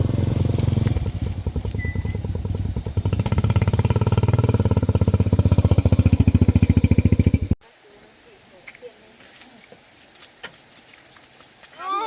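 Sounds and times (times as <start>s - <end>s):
motorbike engine running: 0.0s - 7.6s.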